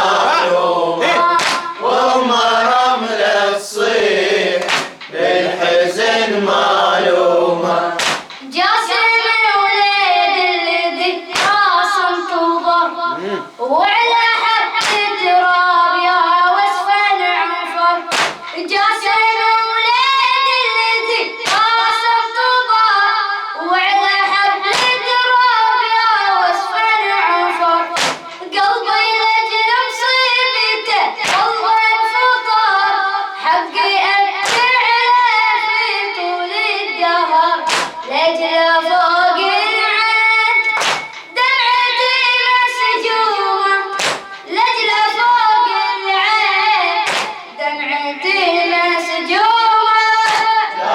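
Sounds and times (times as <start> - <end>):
rhythmic chest-beating strikes: 0.0 - 8.9, 11.3 - 12.3, 14.6 - 15.2, 18.0 - 19.1, 21.3 - 22.1, 24.6 - 25.3, 27.8 - 29.0, 31.1 - 32.2, 34.2 - 35.2, 37.5 - 38.9, 40.5 - 41.9, 43.8 - 45.2, 47.0 - 47.6, 50.0 - 50.8
boy chanting a lament: 0.0 - 50.9.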